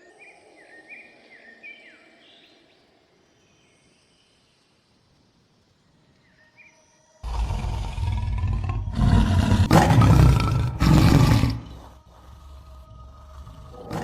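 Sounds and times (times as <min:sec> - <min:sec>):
faint outdoor ambience: 0:00.0 - 0:14.0
animal roar: 0:07.2 - 0:14.0.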